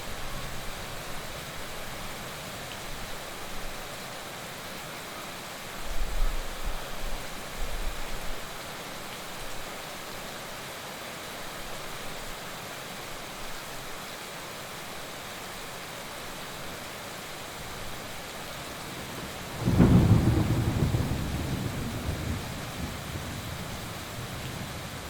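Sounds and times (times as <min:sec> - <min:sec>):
heavy rain falling: 0:00.0 - 0:25.0
thunder crack and rumble: 0:19.5 - 0:24.7.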